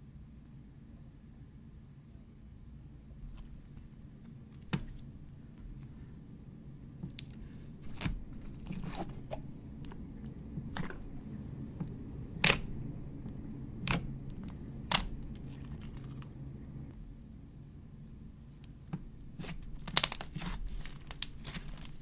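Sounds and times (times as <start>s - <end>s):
slime popping and clicking: 12.4s - 12.7s.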